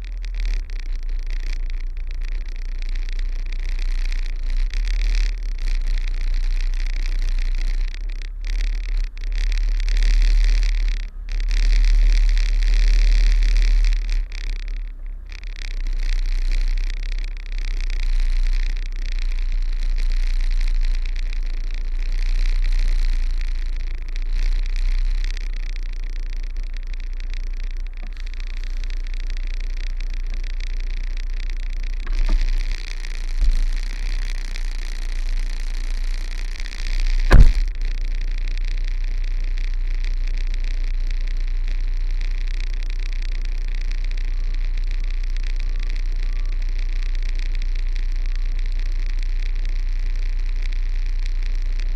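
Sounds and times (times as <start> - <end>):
sharp bang: 37.2 - 37.7.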